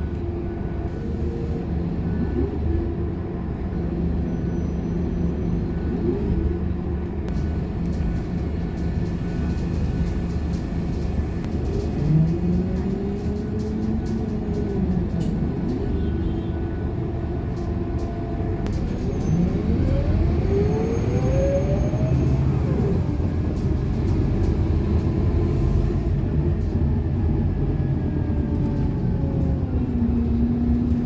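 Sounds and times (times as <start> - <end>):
bus engine rumble: 0.0 - 31.0
rising engine whine: 18.3 - 31.0.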